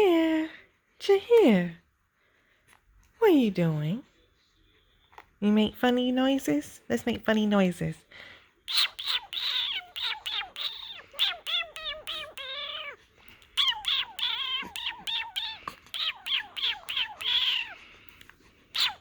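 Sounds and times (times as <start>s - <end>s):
baby squealing: 8.7s - 13.0s, 13.6s - 17.8s, 18.8s - 19.0s.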